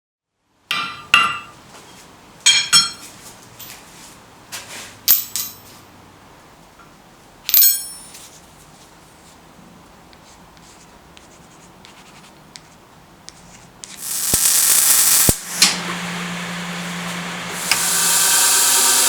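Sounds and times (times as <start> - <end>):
steel striking steel clinks: 7.5 - 8.2.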